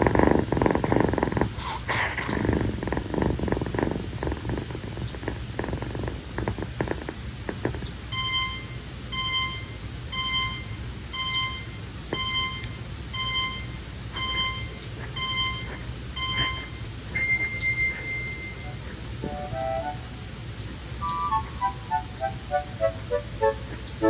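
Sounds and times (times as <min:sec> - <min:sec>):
kitten purring: 0:00.0 - 0:07.9
electronic beeper beeping: 0:08.2 - 0:18.8.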